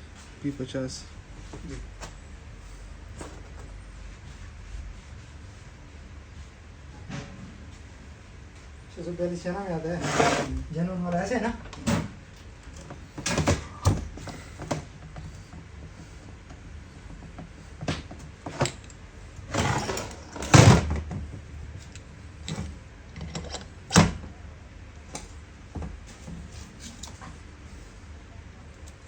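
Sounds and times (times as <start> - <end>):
tools and metal parts clattering: 18.4 - 21.0, 21.8 - 24.1.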